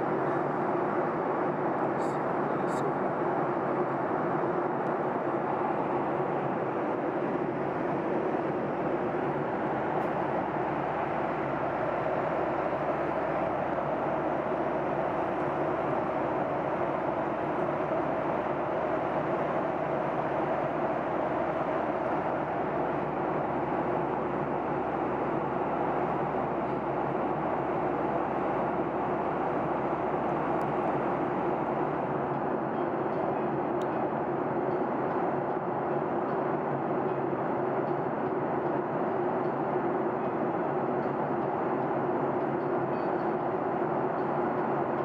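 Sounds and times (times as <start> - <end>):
airliner cabin roar: 0.0 - 45.0.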